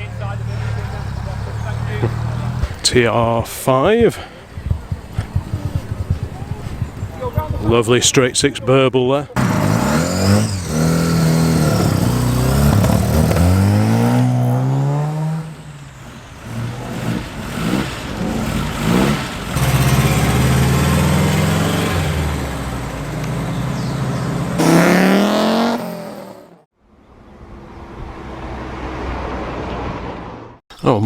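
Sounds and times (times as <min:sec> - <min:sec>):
car engines accelerating past: 0:00.0 - 0:07.5, 0:09.4 - 0:26.6.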